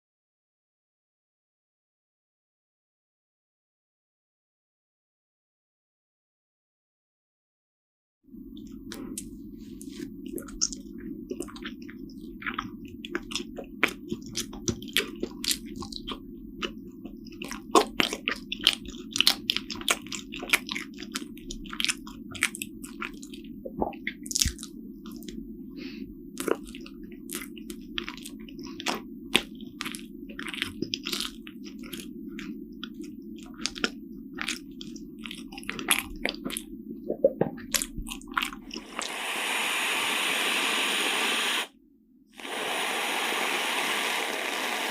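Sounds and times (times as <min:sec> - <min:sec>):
steady low hum: 0:08.3 - 0:44.9
chewing and wet mouth smacks: 0:08.6 - 0:25.4, 0:26.4 - 0:39.1
loud steady hiss: 0:38.8 - 0:41.7, 0:42.4 - 0:44.9.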